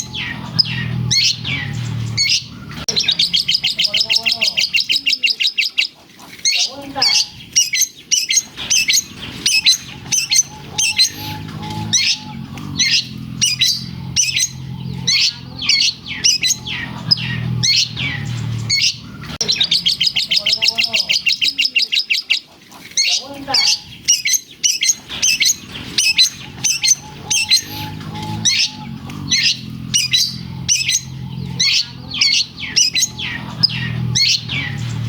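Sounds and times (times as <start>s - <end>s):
low hum: 0.0s - 4.2s, 8.4s - 20.5s, 24.9s - 35.0s
bird chirping and trilling: 0.0s - 35.0s.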